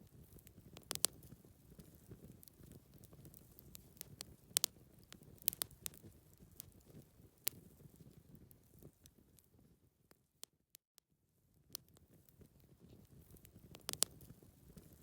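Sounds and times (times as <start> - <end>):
campfire crackling: 0.0 - 9.6, 11.7 - 15.0.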